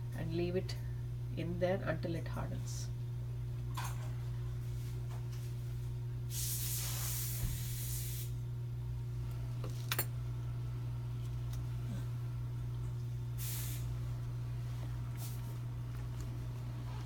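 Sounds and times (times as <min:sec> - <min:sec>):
steady low hum: 0:00.0 - 0:17.0
hissing blast: 0:13.4 - 0:13.9.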